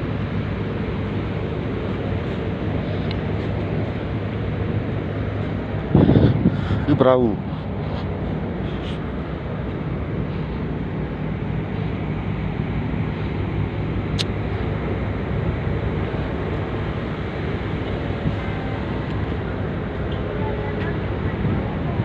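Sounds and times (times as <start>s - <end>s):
ferry engine drone: 0.0s - 22.0s.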